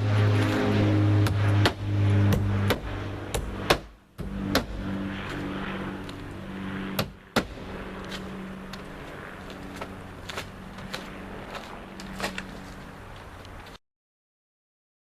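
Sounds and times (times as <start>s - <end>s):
low mechanical hum: 0.0s - 13.8s
nails being hammered: 1.2s - 4.8s.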